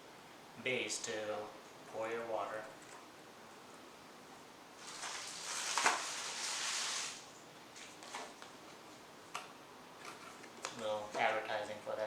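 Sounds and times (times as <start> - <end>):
packaging rustling and crinkling: 4.8 - 7.0.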